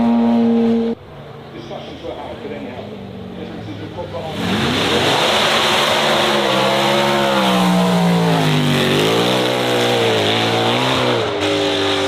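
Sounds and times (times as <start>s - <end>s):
car engine accelerating: 3.4s - 12.0s.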